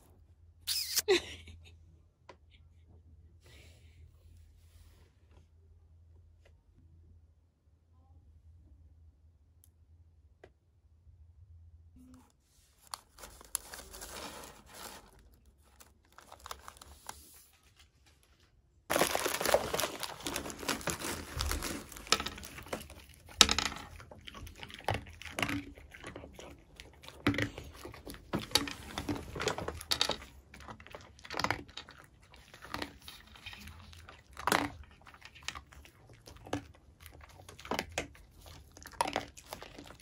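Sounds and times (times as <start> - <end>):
plastic snack bag crinkling: 12.8 - 18.2, 18.9 - 40.0
dog crunching treats: 18.9 - 40.0.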